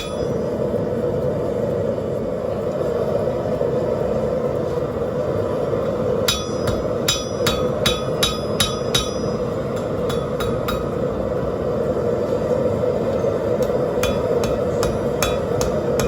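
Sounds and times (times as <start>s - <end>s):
hammer striking on anvil: 0.0s - 0.4s, 6.3s - 11.0s, 13.6s - 16.0s
gas forge burner rushing: 0.0s - 16.0s.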